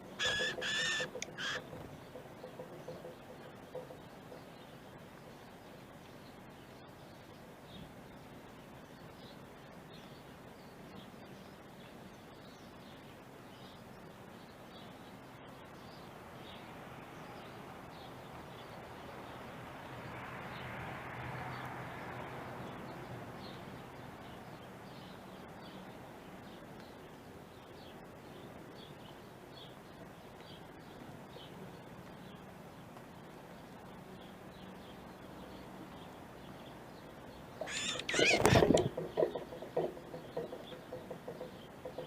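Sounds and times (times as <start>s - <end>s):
small birds chirping: 0.0s - 8.2s, 23.4s - 42.0s
outdoor background hiss: 0.0s - 42.0s.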